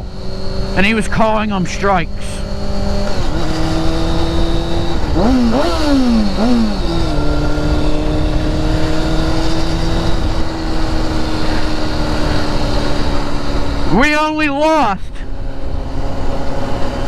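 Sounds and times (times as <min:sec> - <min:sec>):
wind rumble: 0:00.0 - 0:13.9
motorcycle engine shifting gears: 0:00.0 - 0:14.0, 0:15.2 - 0:17.0.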